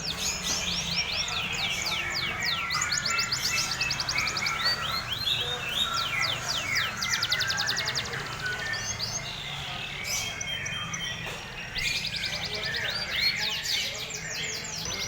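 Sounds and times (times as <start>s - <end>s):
canary singing trills and whistles: 0.0s - 15.0s.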